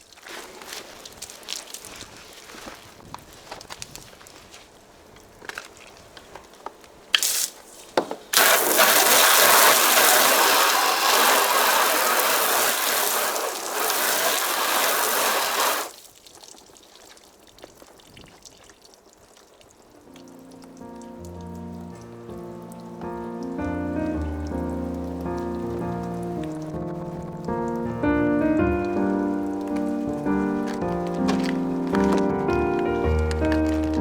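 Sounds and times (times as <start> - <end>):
water spraying from hose nozzle: 7.2 - 7.6, 8.3 - 16.6, 21.2 - 34.0.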